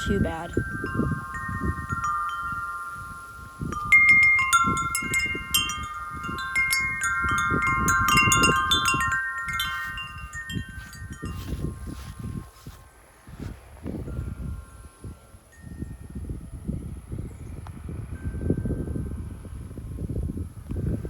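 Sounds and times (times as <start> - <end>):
metal wind chime ringing: 0.0 - 13.4, 14.0 - 19.6
wind rumbling: 0.0 - 15.2.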